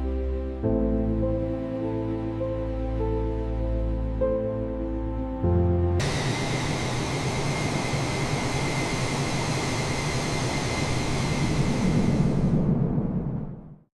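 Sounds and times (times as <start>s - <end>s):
jet engine whine and rumble: 6.0s - 13.9s.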